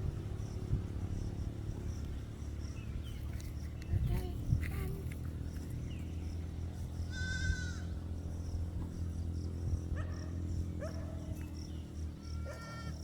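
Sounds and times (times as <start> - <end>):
goats bleating: 7.1 - 7.9.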